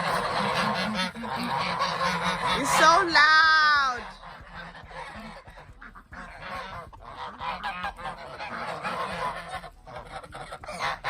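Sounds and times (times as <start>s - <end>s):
geese honking: 0.0s - 11.0s.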